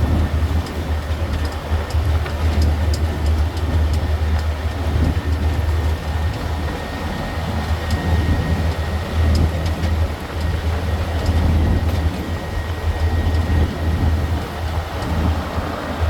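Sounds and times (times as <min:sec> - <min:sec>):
tour train droning: 0:00.0 - 0:16.0.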